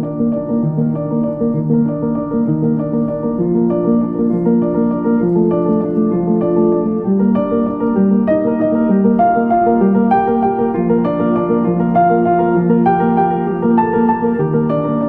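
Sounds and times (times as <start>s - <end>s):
piano piece: 0.0s - 15.0s.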